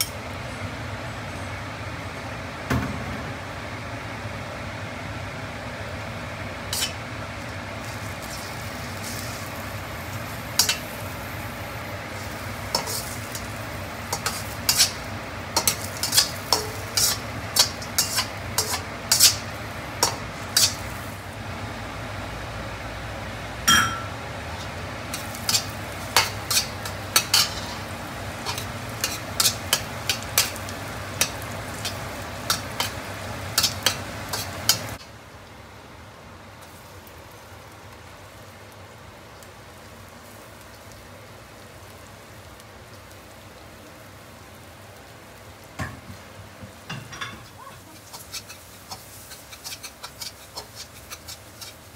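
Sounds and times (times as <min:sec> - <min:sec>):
shrimp sizzling in oil: 0:00.0 - 0:00.5, 0:03.4 - 0:51.9
spatula scraping and knocking pan: 0:45.8 - 0:51.8.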